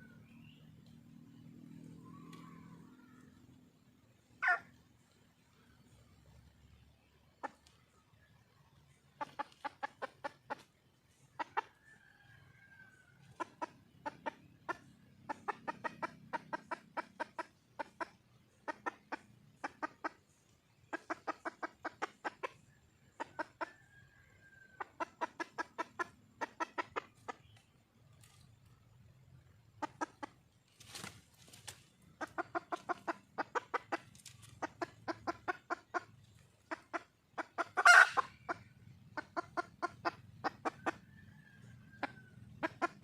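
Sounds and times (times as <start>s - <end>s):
junglefowl hen clucking: 0.0s - 43.0s
hen drawn-out falling call: 4.4s - 4.8s, 37.8s - 38.3s.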